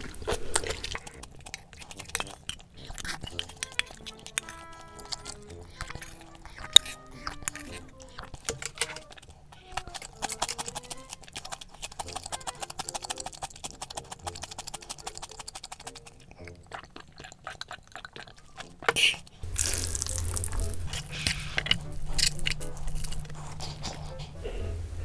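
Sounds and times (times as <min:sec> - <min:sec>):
rapid small clicks and clatter: 0:00.0 - 0:16.2
soft background music: 0:00.0 - 0:25.0.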